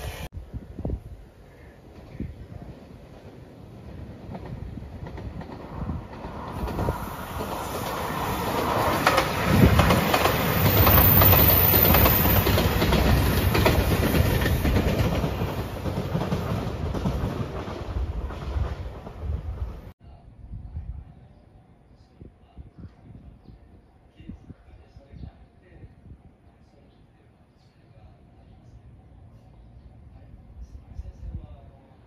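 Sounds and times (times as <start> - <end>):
diesel train passing at speed: 0.0 - 19.9
wheels clickety-clack on rail joints: 1.8 - 19.9.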